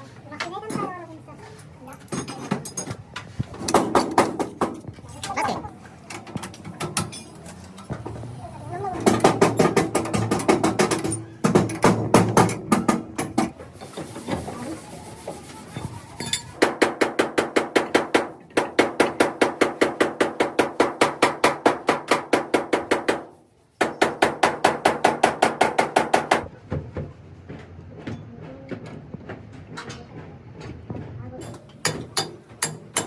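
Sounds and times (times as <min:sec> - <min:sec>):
hammer beating sheet metal: 0:03.6 - 0:04.9, 0:09.0 - 0:13.6, 0:16.2 - 0:26.5.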